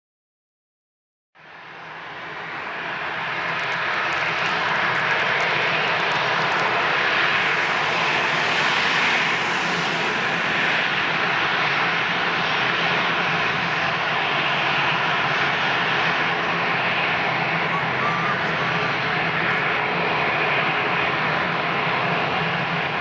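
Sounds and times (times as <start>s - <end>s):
jet engines roaring: 1.5s - 23.0s.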